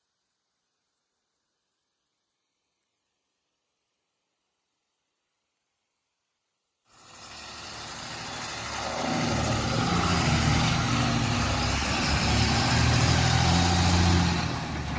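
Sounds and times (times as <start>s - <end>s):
heavy vehicle engine running: 6.9s - 14.9s.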